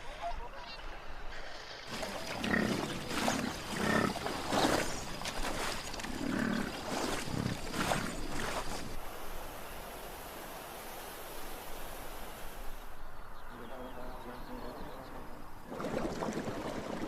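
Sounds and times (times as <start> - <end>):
large animal growling: 2.0 - 4.9, 6.0 - 8.1.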